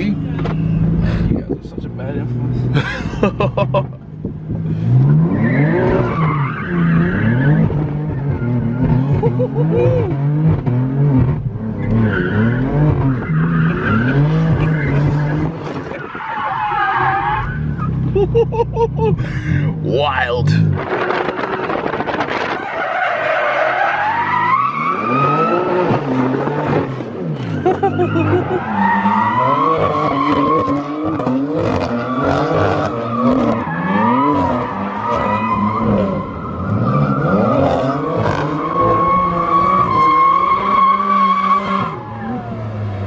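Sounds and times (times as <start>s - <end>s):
car engine revving: 0.0s - 43.0s
tyres squealing and skidding: 5.2s - 10.2s, 11.8s - 18.9s, 21.3s - 43.0s.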